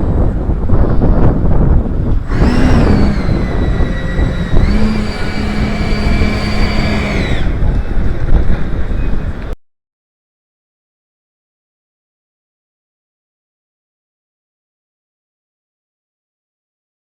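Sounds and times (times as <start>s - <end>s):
ducted fan whine: 0.0s - 9.6s
heavy low rumble: 0.3s - 9.5s.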